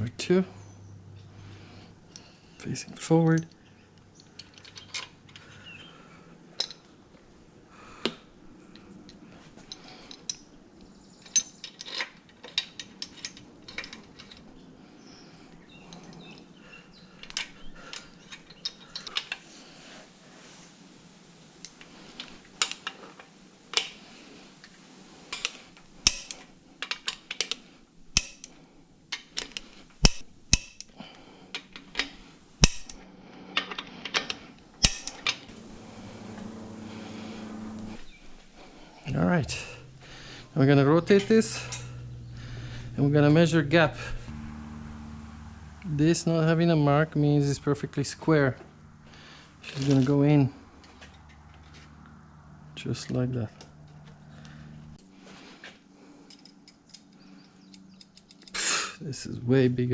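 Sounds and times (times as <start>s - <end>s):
metal tools clinking: 4.2s - 5.5s, 11.1s - 14.5s, 31.5s - 35.5s, 39.1s - 44.2s
faint steady hum: 12.4s - 59.9s.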